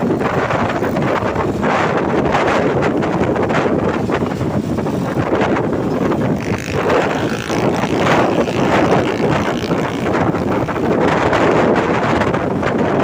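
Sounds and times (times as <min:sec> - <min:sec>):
wind buffeting microphone: 0:00.0 - 0:13.0
road traffic passing: 0:05.7 - 0:11.8.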